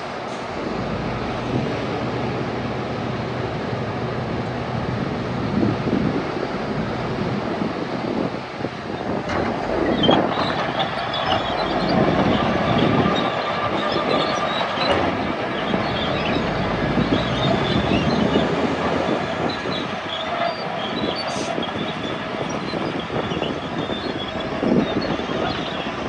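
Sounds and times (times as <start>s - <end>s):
bulldozer diesel engine running: 0.0s - 26.0s
steel tracks clanking and squealing: 7.6s - 26.0s.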